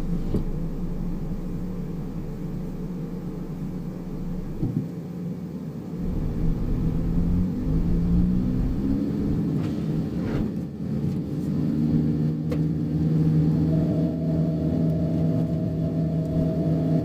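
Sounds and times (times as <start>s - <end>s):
car engine and road rumble: 0.0s - 17.0s
low-pitched held tones: 6.0s - 9.5s, 13.0s - 17.0s
brief rising sweeps: 6.0s - 10.6s.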